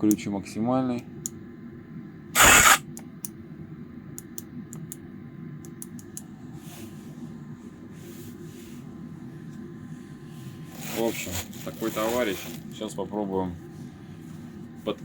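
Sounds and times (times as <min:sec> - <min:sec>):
impact wrench burst: 0:02.4 - 0:02.8.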